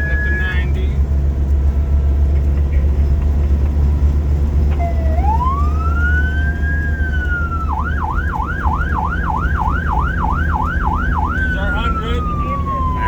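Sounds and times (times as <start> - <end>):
siren wailing and yelping: 0.0 - 0.6, 4.8 - 13.0
fire truck engine accelerating: 0.0 - 13.0.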